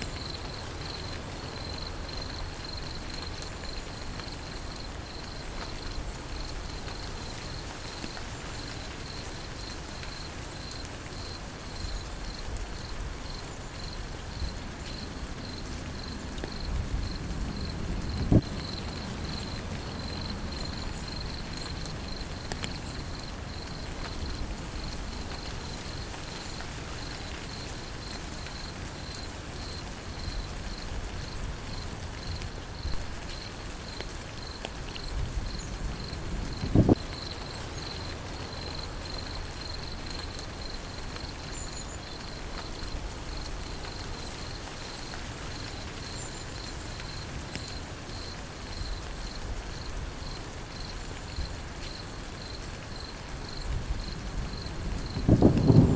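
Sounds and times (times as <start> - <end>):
insect chirping: 0.0 - 55.9
steady rain: 0.0 - 55.9.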